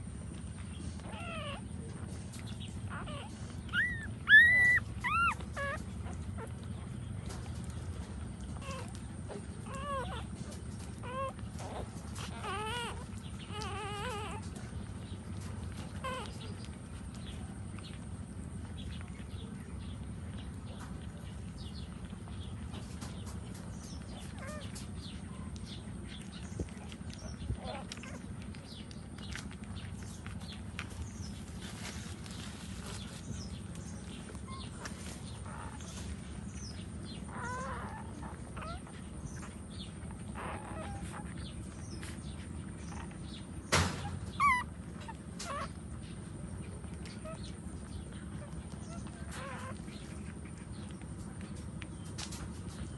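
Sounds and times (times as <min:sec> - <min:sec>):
low background rumble: 0:00.0 - 0:52.9
puppies whimpering: 0:00.0 - 0:52.9
high chirps and squeaks: 0:02.9 - 0:05.8, 0:43.9 - 0:45.8.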